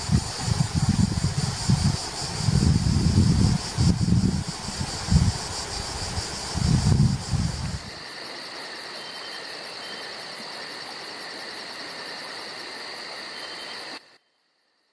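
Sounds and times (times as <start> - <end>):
wind buffeting microphone: 0.0 - 8.0
insects chirping: 0.0 - 14.9.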